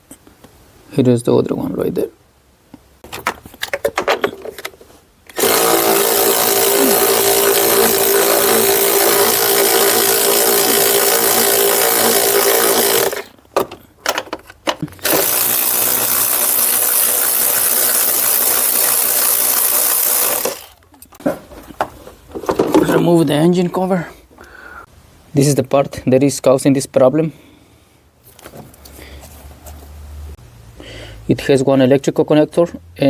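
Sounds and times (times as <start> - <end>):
cordless power tool whining: 5.3 - 13.4, 14.8 - 20.8.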